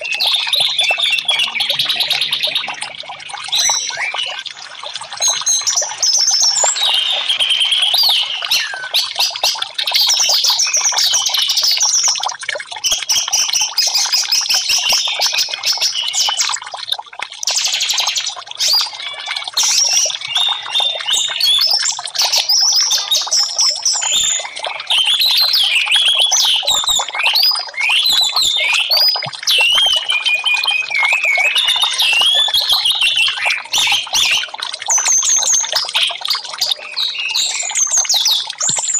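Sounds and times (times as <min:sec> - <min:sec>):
thrush singing whistles and trills: 0:00.0 - 0:12.2, 0:12.8 - 0:16.6, 0:17.5 - 0:38.9.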